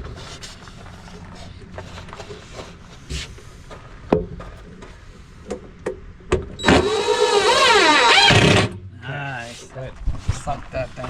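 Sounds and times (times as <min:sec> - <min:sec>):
power drill driving screw: 0:06.6 - 0:08.8.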